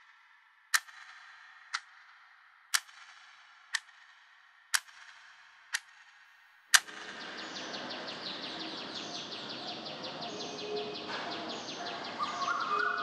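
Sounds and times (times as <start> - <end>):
birds chirping: 6.9 - 13.0.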